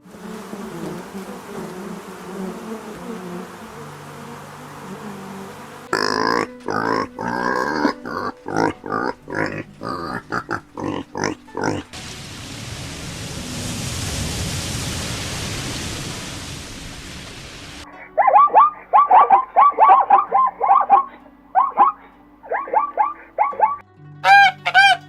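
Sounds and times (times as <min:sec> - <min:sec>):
steady rushing hiss: 0:00.0 - 0:06.0, 0:07.2 - 0:17.9
pig grunting and squealing: 0:05.9 - 0:12.0.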